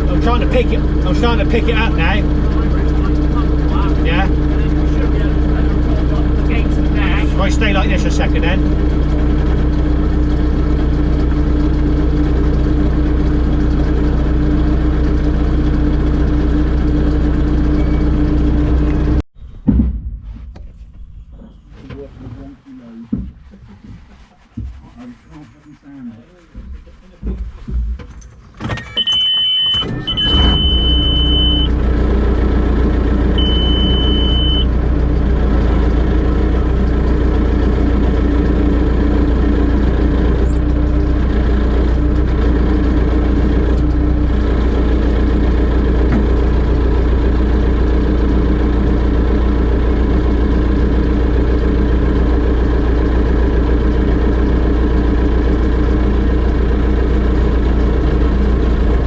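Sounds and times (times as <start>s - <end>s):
diesel engine running: 0.0s - 59.0s
knocks: 19.6s - 21.0s
high warning beep: 28.7s - 31.7s, 33.4s - 34.7s.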